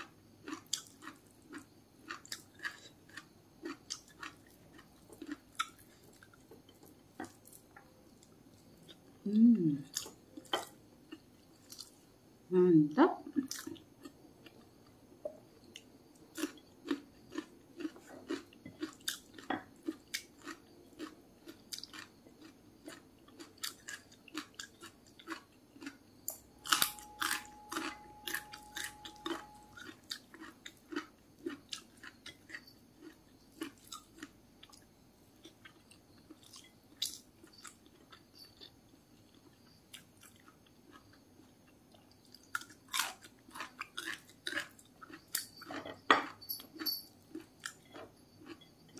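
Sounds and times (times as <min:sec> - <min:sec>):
person chewing and crunching: 0:00.0 - 0:12.0, 0:13.4 - 0:48.9
faint steady tone: 0:00.0 - 0:48.9.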